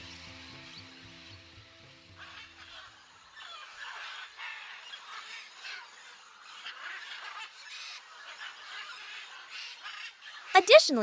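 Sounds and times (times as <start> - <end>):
macaws squawking: 2.2 - 10.5.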